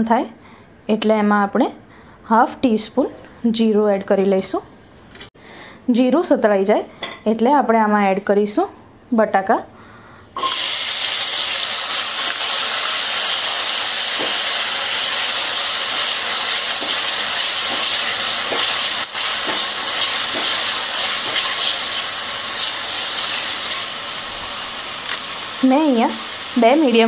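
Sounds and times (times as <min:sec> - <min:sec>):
potatoes sizzling in hot oil: 0:10.4 - 0:27.0
spatula tapping: 0:15.9 - 0:21.9.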